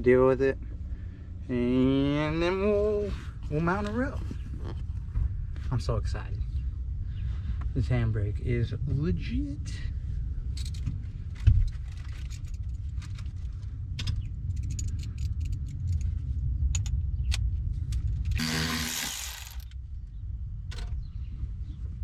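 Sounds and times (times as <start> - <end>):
steady low rumble: 0.0 - 22.0
metal tools clicking and clinking: 18.3 - 19.8.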